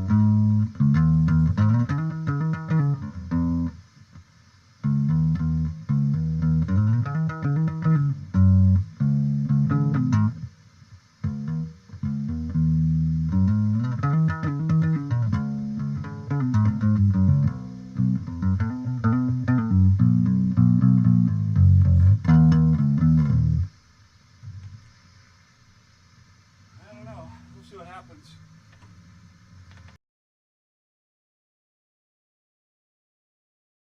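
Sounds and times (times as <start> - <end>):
electric bass plucked notes: 0.0 - 3.8, 4.8 - 10.5, 11.2 - 23.7.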